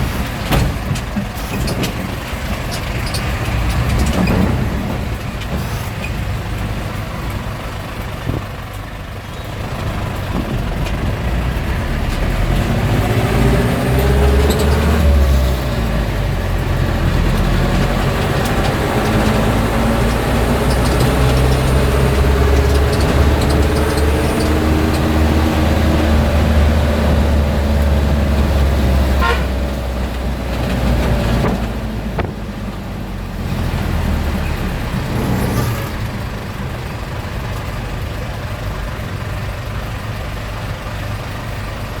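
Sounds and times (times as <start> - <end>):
old car engine running: 0.0 - 42.0
street traffic: 0.0 - 42.0
car horn toot: 29.2 - 29.7.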